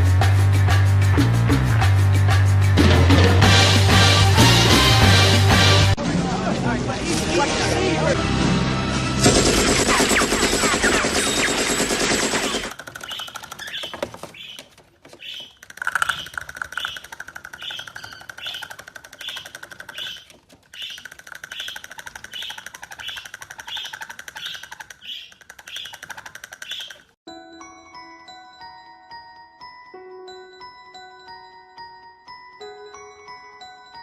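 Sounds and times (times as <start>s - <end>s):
faint fast rattle: 15.1s - 27.1s.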